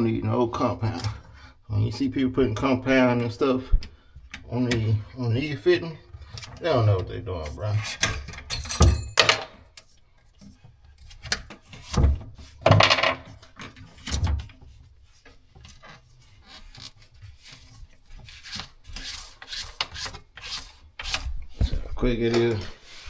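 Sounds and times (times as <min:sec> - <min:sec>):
knocks and clunks of parts: 0:08.0 - 0:09.6, 0:11.2 - 0:14.7
scraping and rubbing of fitting: 0:13.6 - 0:21.8.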